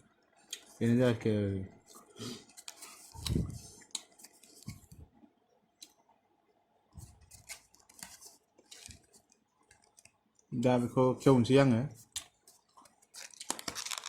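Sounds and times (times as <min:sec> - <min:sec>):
packaging crackling: 0:12.8 - 0:14.0.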